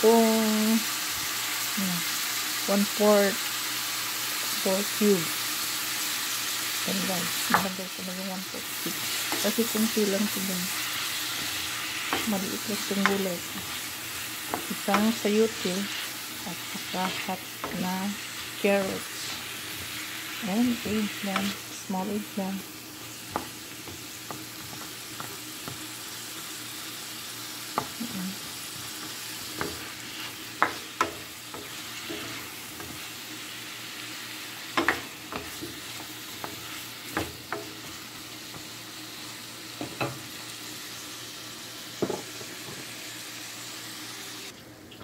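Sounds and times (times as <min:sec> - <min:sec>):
vegetables and meat sizzling: 0:00.0 - 0:45.0
spatula clacking on pan: 0:30.6 - 0:33.0.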